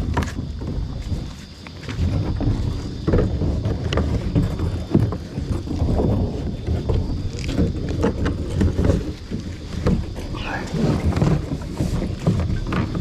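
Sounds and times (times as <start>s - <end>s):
kayak dragged over ground: 0.0s - 13.0s
knocks and scrapes: 0.0s - 13.0s.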